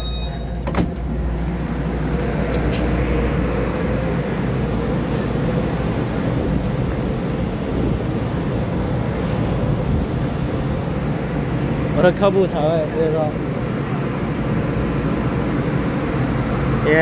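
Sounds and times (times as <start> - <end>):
train door click: 0.0 - 1.3
standing trains humming: 0.0 - 17.0.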